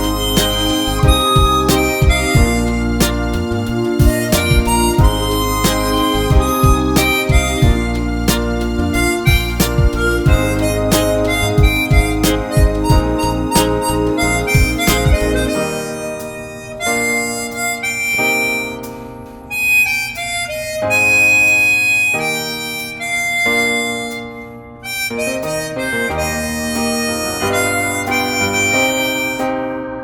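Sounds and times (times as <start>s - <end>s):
drum beat: 0.0s - 15.6s
bass: 0.0s - 16.0s, 25.2s - 29.4s
harmonica slow melody: 0.0s - 30.0s.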